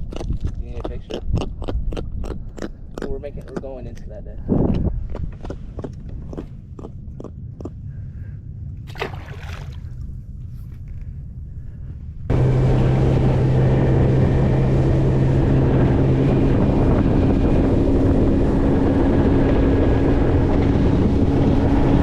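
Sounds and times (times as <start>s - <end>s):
wind buffeting microphone: 0.0s - 22.0s
boat motor running: 12.3s - 22.0s.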